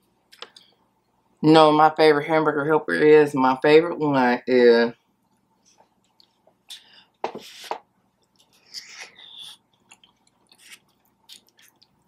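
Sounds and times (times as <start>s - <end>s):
person chewing food: 5.3s - 12.0s.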